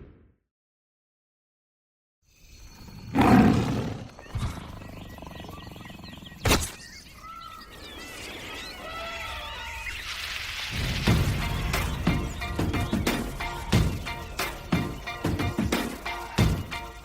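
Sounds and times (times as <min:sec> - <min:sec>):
wild outdoor ambience: 0:02.2 - 0:17.0
warbling bird calls: 0:02.5 - 0:17.0
animal roaring: 0:02.9 - 0:06.4.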